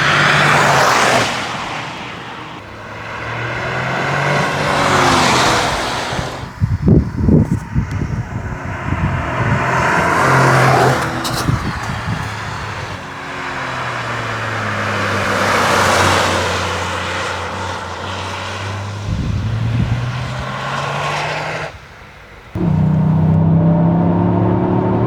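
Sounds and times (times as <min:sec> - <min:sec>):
car engine and exhaust running: 0:00.0 - 0:25.0.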